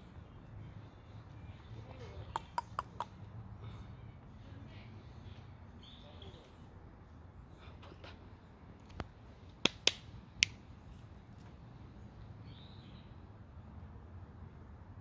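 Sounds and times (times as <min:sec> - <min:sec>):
squirrel gnawing with sharp snaps: 0:02.4 - 0:03.2, 0:08.8 - 0:10.6.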